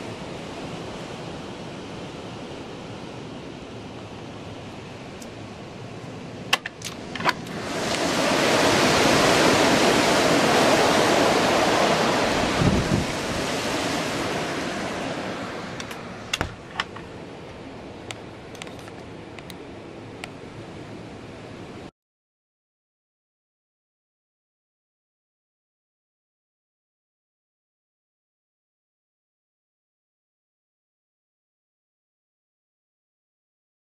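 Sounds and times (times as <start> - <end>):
storm wind gust: 5.4 - 18.1
sharp clicks and knocks: 6.5 - 7.5, 15.8 - 17.1.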